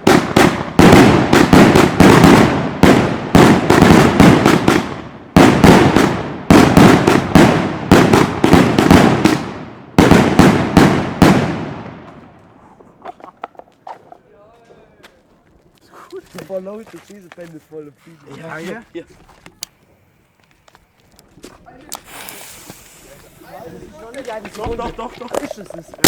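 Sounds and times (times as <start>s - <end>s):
firecrackers banging: 0.0s - 14.2s, 19.5s - 26.0s.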